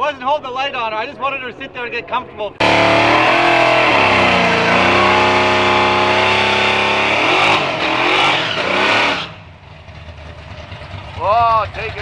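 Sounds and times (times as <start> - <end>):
vehicle engine accelerating: 2.6 - 12.0.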